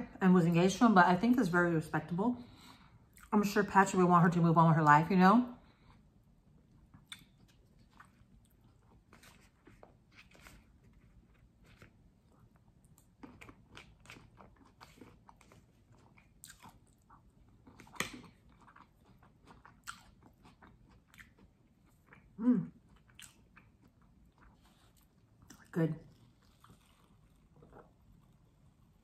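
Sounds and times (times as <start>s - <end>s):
person chewing crunchy food: 5.8s - 29.0s.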